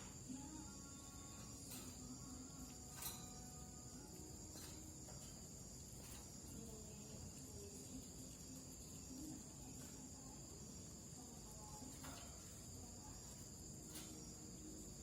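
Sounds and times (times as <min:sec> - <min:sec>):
faint ticks: 0:00.0 - 0:10.8
insects chirring: 0:00.0 - 0:15.0.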